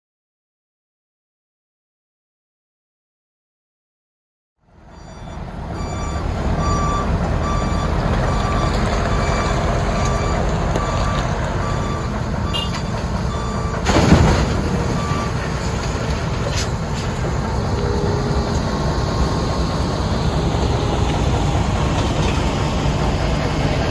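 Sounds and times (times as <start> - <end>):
diesel machinery rumble: 4.7 - 23.9
backup alarm beeping: 4.9 - 16.1.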